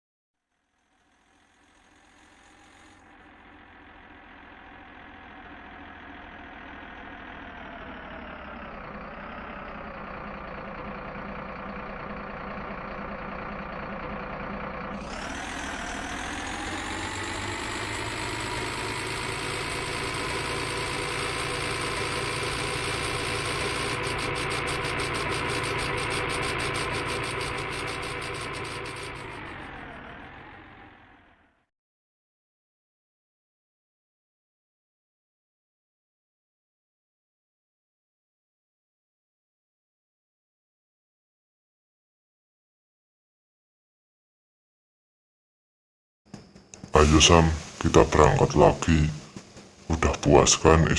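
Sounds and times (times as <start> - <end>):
truck engine idling and revving: 0.6 - 31.6, 46.3 - 50.8.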